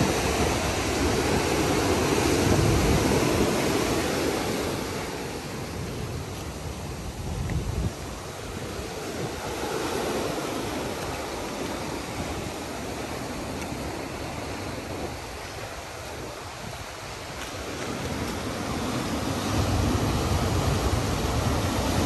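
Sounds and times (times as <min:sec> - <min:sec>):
ocean surf washing ashore: 0:00.0 - 0:22.0
wind on microphone: 0:00.0 - 0:22.0.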